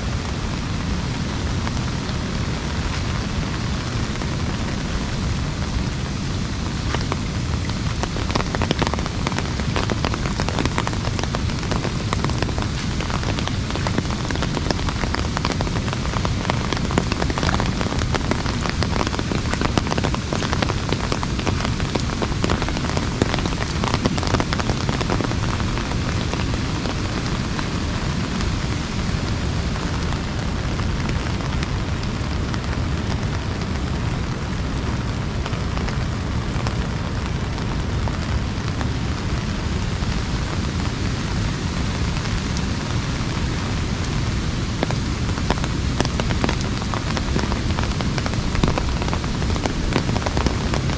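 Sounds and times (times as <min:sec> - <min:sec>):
constant low rumble: 0:00.0 - 0:50.9
rain drumming on an umbrella: 0:00.0 - 0:50.9.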